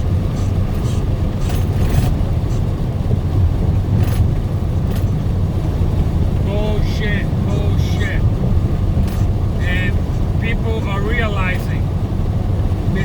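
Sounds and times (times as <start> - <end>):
truck engine and road rumble: 0.0 - 13.0
short hissing swishes: 0.3 - 2.8.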